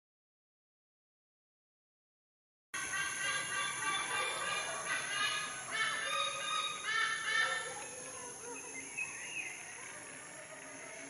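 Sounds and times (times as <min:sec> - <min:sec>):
bird calling: 0:02.8 - 0:09.8.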